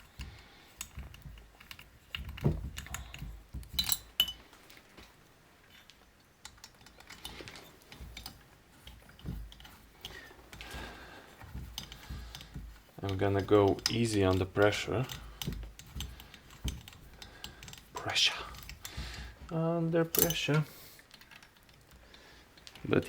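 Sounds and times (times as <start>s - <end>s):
metallic clicks of hand tool: 11.8s - 23.0s.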